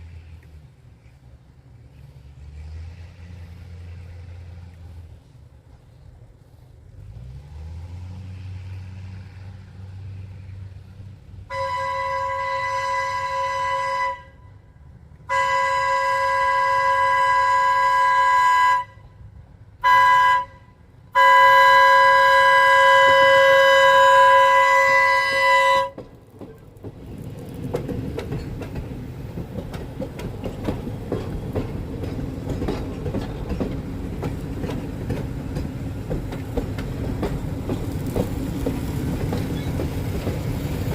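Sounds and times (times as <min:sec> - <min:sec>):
train rumbling past: 0:00.0 - 0:40.9
train horn blasts: 0:11.5 - 0:26.1
wheels clacking on rail joints: 0:22.8 - 0:40.9.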